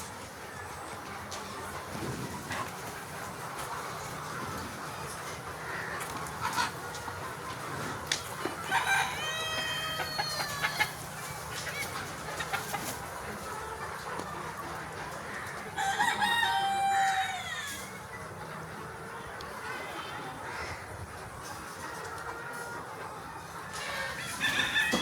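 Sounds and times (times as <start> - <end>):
chickens clucking: 0.0 - 25.0
rooster crowing: 8.7 - 11.0, 15.8 - 17.8, 24.0 - 25.0.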